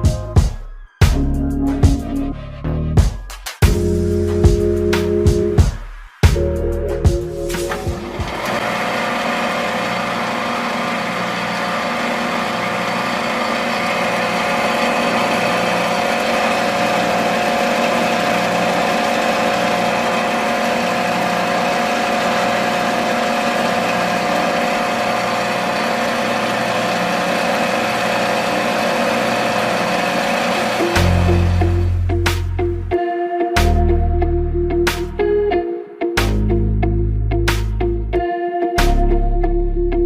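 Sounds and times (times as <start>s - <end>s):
small motor whining: 7.7s - 31.9s.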